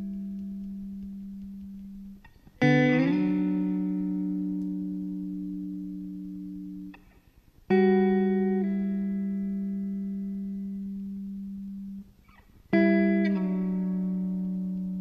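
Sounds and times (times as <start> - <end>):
slow sustained music chords: 0.0 - 7.0, 7.7 - 15.0.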